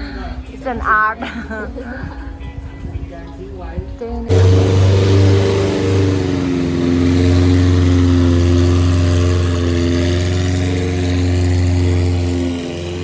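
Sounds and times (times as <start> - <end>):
boat engine running: 4.3 - 13.0.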